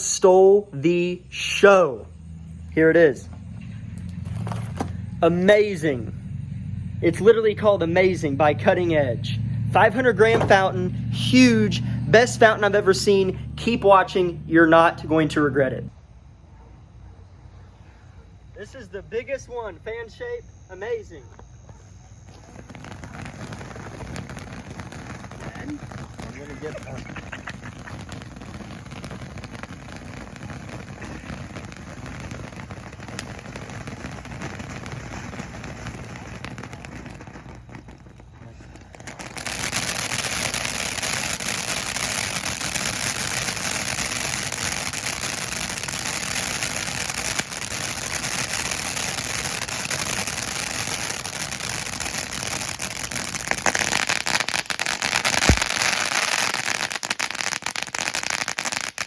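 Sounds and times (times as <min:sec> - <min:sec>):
fountain firework crackling: 0:00.0 - 0:16.3, 0:18.6 - 0:59.0
sharp pop: 0:55.3 - 0:56.1.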